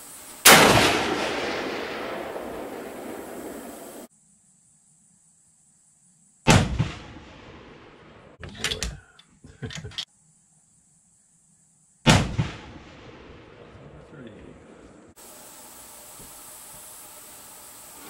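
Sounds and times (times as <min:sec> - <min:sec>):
rifle shots: 0:00.4 - 0:04.1, 0:06.5 - 0:07.9, 0:12.1 - 0:13.6.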